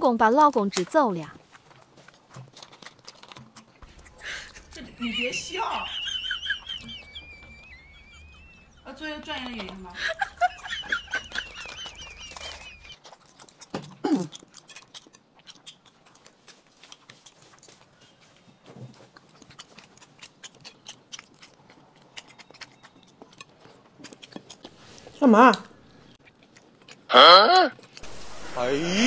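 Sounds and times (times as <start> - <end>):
chewing and biting: 0.3 - 28.3
warbling bird-like call: 5.7 - 8.9.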